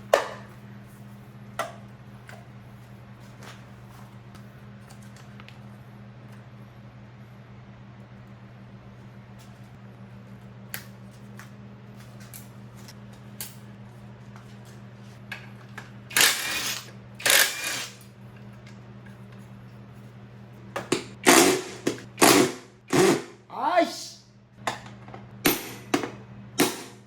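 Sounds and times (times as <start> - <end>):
handheld power tool bursts: 16.1 - 18.0, 21.2 - 23.3.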